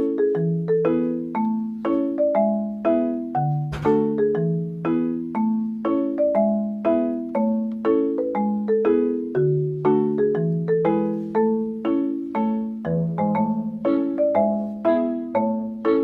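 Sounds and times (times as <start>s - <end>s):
bouncy marimba-like tune: 0.0s - 16.0s.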